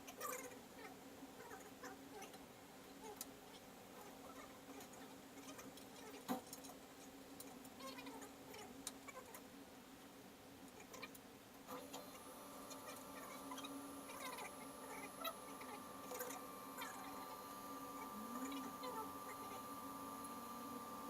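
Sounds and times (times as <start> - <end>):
low steady hum: 0.0 - 21.0
high-pitched tone: 12.6 - 21.0.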